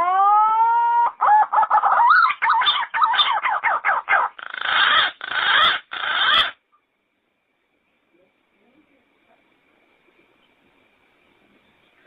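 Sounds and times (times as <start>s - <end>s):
pigeon calling: 0.0s - 6.6s.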